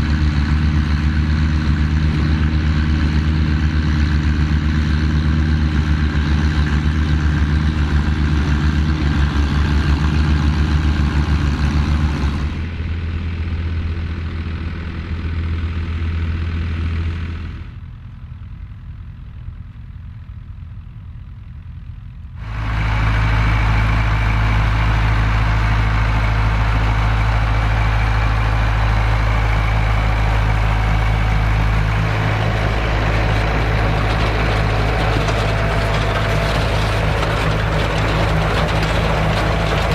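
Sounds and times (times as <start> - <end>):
tractor engines running: 0.0 - 39.9.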